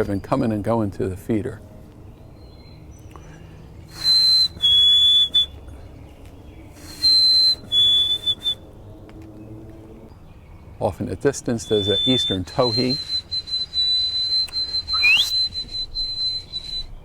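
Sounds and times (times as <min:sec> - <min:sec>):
chickadee two-note whistle: 0:04.0 - 0:05.5, 0:07.0 - 0:08.6, 0:11.7 - 0:16.9.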